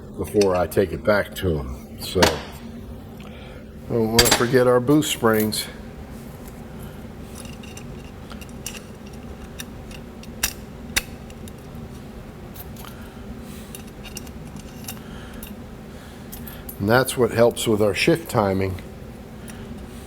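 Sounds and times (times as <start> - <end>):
steady low hum: 0.0 - 20.0
small metal parts clicking: 7.4 - 11.6.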